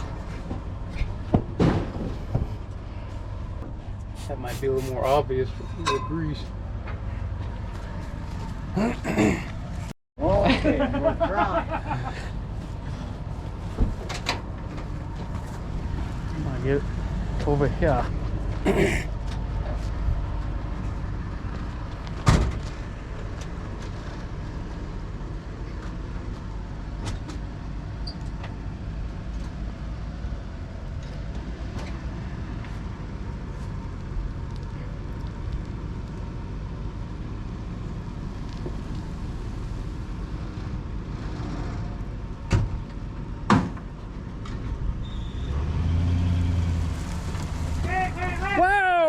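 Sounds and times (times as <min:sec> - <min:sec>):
vehicle engine rumbling: 0:00.0 - 0:49.0.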